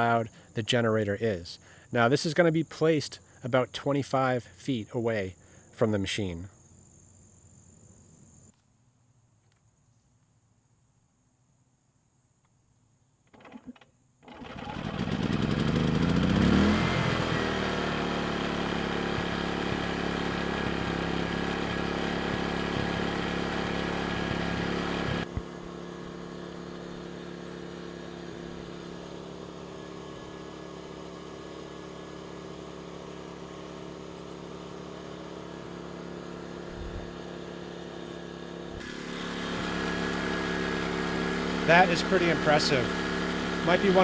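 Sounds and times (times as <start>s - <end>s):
generator engine hum: 13.3s - 44.0s.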